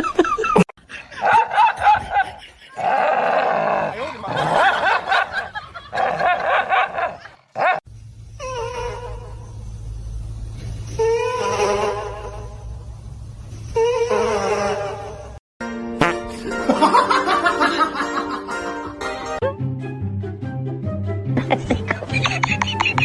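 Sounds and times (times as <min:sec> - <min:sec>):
people laughing: 0:00.0 - 0:03.1, 0:04.0 - 0:07.4, 0:16.4 - 0:18.9, 0:21.4 - 0:23.0.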